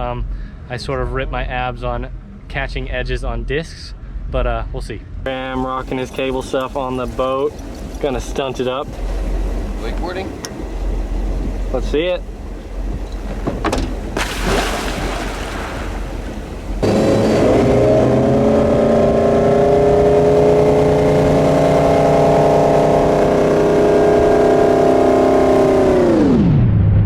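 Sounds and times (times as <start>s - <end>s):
wind: 0.0s - 27.0s
water rushing: 5.3s - 20.0s
boat engine running: 5.3s - 26.2s.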